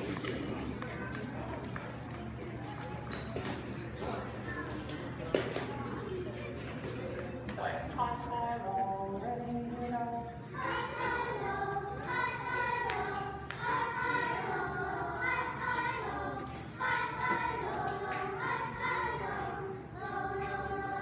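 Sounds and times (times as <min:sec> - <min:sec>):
children singing together: 0:10.6 - 0:21.0.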